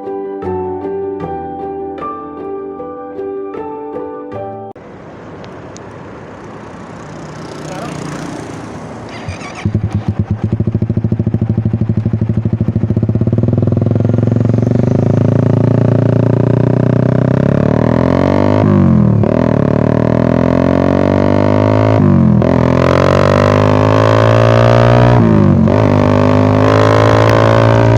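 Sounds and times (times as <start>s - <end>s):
motorcycle engine revving: 6.0s - 27.9s.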